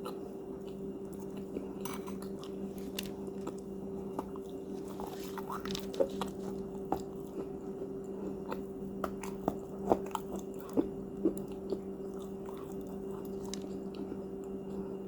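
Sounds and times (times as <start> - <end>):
crunchy cookies chewing: 0.0 - 15.0
steady low hum: 0.0 - 15.0.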